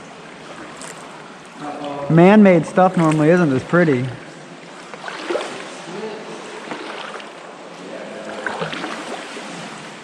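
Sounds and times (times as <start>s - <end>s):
paddles splashing in water: 2.7s - 10.0s.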